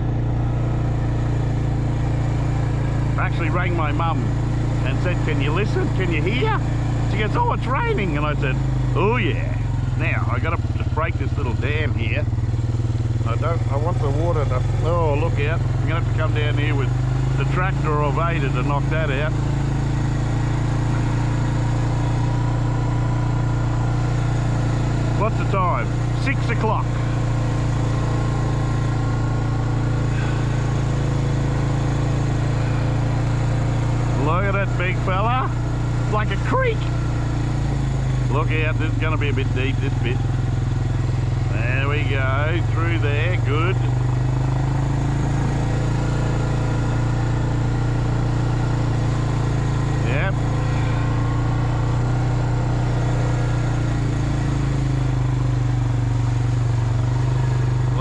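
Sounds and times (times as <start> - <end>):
small engine running steadily: 0.0 - 58.0.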